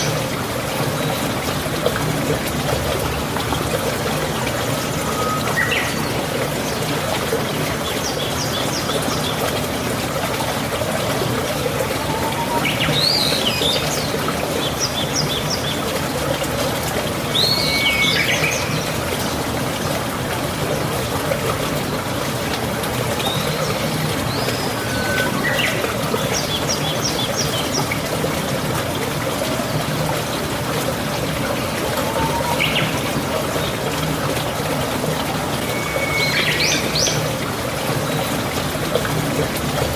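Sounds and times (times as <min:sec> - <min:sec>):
flowing water rushing: 0:00.0 - 0:39.9
birds chirping: 0:11.6 - 0:15.9, 0:23.2 - 0:28.1, 0:31.4 - 0:33.7.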